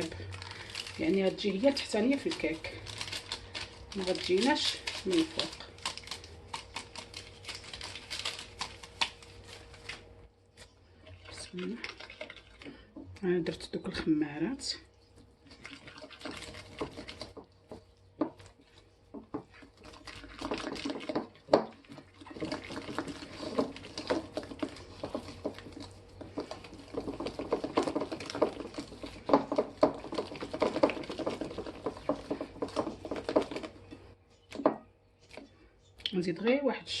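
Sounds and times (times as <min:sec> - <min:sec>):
utensil scraping a bowl: 0:15.5 - 0:34.1.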